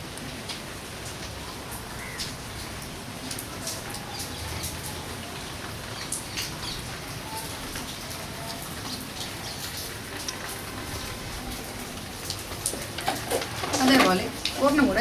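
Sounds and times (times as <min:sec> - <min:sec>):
light clicks and rustles: 0:12.4 - 0:15.0.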